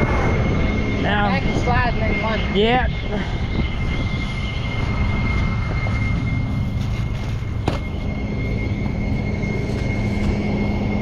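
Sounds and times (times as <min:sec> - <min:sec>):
truck engine rumble: 0:02.9 - 0:11.0
hydraulic whine: 0:03.3 - 0:11.0.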